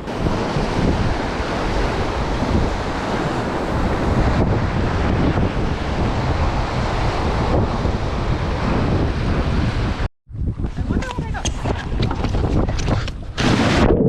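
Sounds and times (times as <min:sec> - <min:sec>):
whitewater river rushing: 0:00.0 - 0:10.1
wind buffeting microphone: 0:00.0 - 0:14.0.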